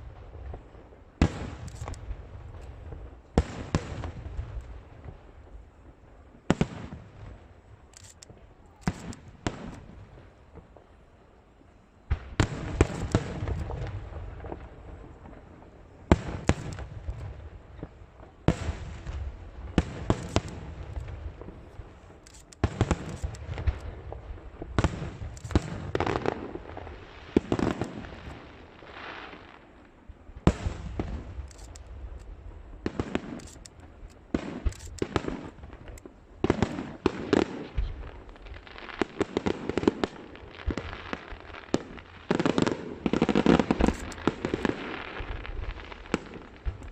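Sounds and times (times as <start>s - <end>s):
fireworks bursting: 0.0s - 11.0s, 12.1s - 46.9s
rumbling and crackling: 18.9s - 28.4s, 40.1s - 46.9s.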